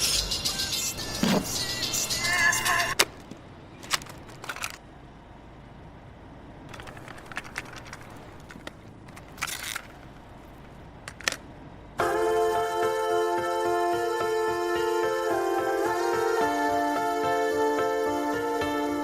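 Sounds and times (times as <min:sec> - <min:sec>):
music: 0:00.0 - 0:02.9, 0:12.0 - 0:19.0.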